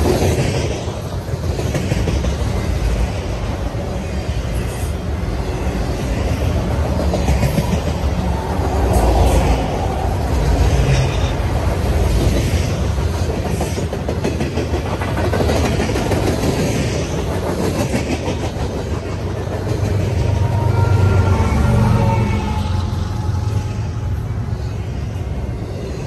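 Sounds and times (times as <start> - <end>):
train wheels clicking over rail joints: 0.0 - 20.7
train rumble: 0.0 - 26.0.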